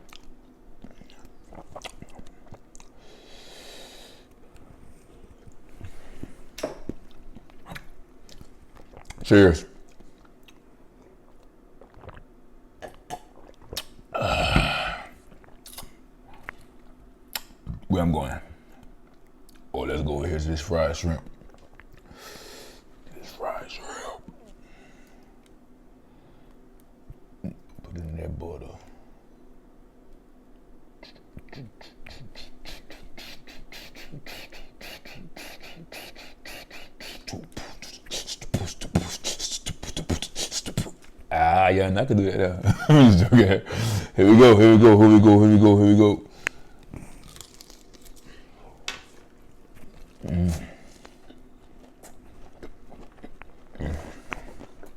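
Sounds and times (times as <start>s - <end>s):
close-up chewing: 0.0s - 3.0s, 4.5s - 9.2s, 9.8s - 14.0s, 46.4s - 54.9s
wet mouth clicks: 0.0s - 3.0s, 11.3s - 14.0s, 15.3s - 16.6s, 17.3s - 17.6s, 31.0s - 41.2s
person burping loudly: 14.1s - 15.2s.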